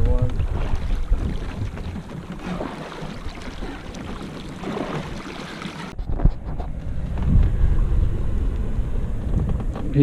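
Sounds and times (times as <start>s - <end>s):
wind rumbling on microphone: 0.0s - 2.5s, 3.1s - 10.0s
river water splashing: 0.3s - 6.0s.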